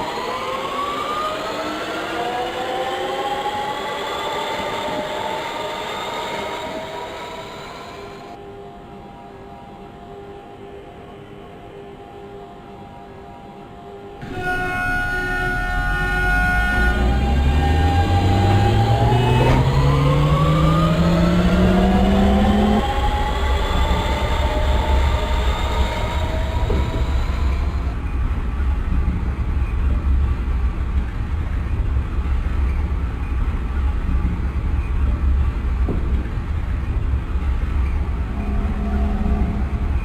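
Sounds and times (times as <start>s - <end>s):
train drive whine rising: 0.0s - 11.8s, 13.2s - 40.0s
train low rumble: 0.0s - 40.0s.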